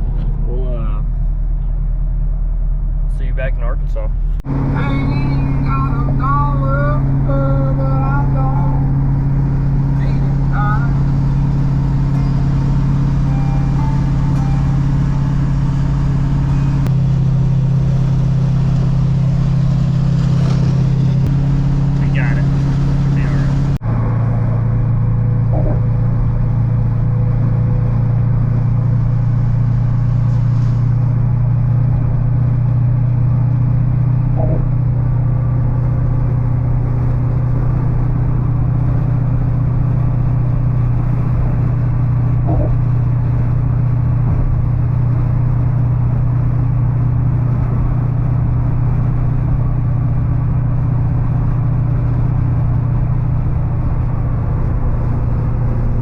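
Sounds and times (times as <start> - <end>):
engine and road drone: 0.0 - 56.0.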